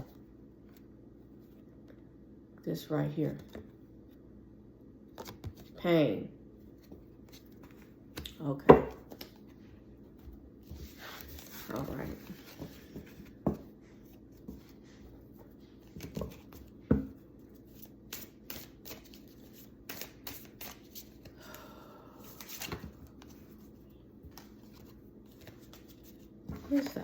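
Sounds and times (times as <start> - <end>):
cards being shuffled: 17.6 - 21.3.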